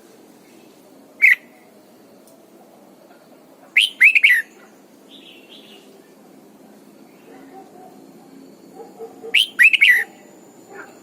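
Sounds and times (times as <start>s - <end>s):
bird singing: 1.2s - 1.7s, 3.8s - 6.0s, 7.1s - 11.0s.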